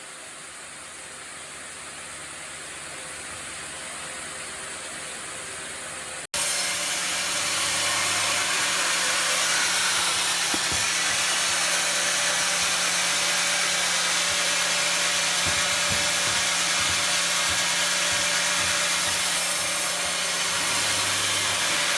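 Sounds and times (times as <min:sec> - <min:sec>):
sawmill saw cutting wood: 0:06.4 - 0:21.9.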